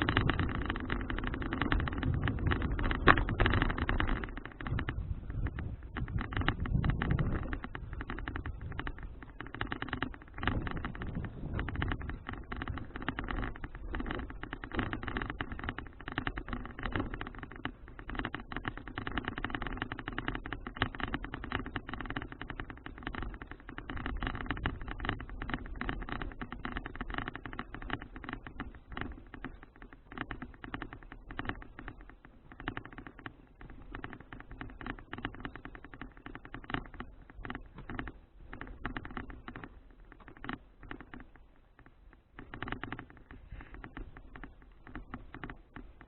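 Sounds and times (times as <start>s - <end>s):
bicycle clicking and rattling: 0.0s - 46.0s
low rumble of bicycle riding: 0.0s - 46.0s.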